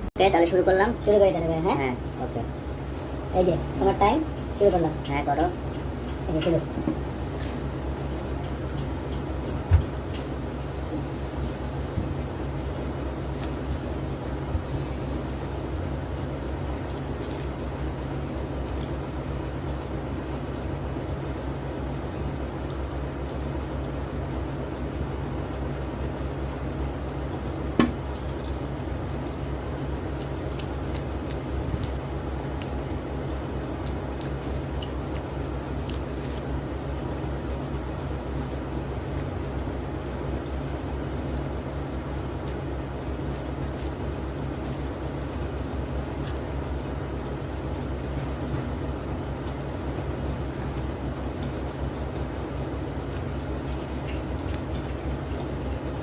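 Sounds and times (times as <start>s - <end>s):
low background hum: 0.0s - 56.0s
crunchy chewing clicks: 13.3s - 19.1s, 29.7s - 37.0s.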